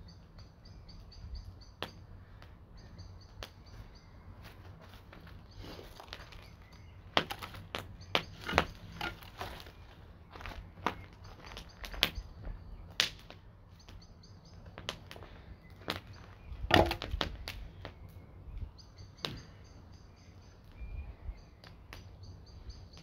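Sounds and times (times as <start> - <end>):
axe chopping wood: 16.7 - 17.4.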